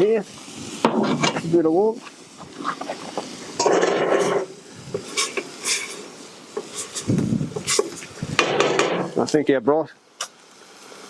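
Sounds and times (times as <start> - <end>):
skillet scraping: 2.6 - 9.3
metal cookware clinking and knocking: 3.6 - 4.5, 6.6 - 9.2.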